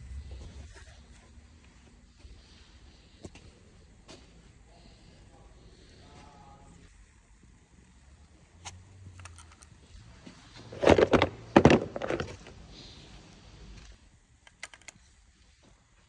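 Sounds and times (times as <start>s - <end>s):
metal parts light clicks: 8.6s - 9.8s, 13.8s - 15.0s.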